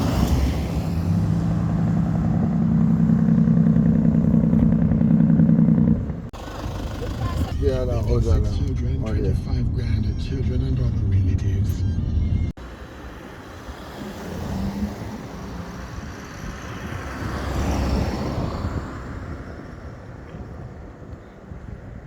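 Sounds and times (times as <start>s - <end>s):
vehicle passing by: 12.8s - 20.0s.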